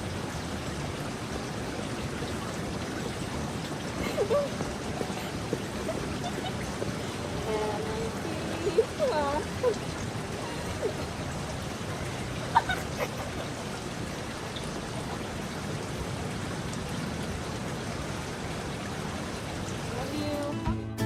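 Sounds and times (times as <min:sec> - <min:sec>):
fountain water splashing: 0:00.0 - 0:20.6.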